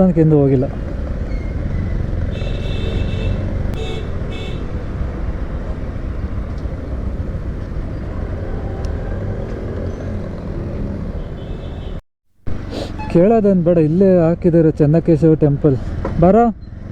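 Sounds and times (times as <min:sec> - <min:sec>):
motorcycle engine and road rumble: 0:00.0 - 0:16.9
vehicle horn honking: 0:02.3 - 0:05.0, 0:11.2 - 0:12.0.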